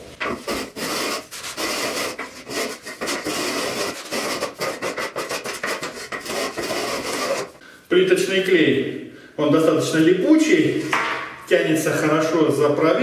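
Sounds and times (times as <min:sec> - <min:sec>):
tile adhesive scraped with a rule: 0:00.2 - 0:07.6.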